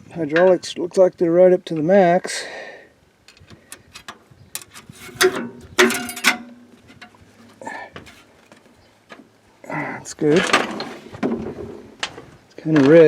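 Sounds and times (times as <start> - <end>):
metal clicks and clanks: 3.3 - 8.6.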